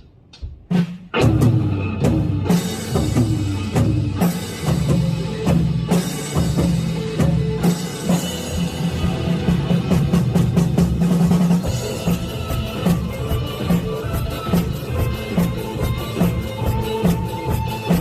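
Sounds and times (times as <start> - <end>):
band backing track: 0.0 - 18.0
drum kit playing: 0.0 - 18.0.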